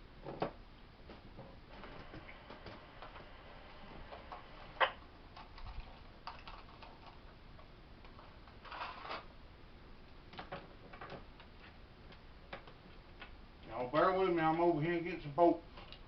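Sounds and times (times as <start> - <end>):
scraping rustle: 8.6 - 9.3.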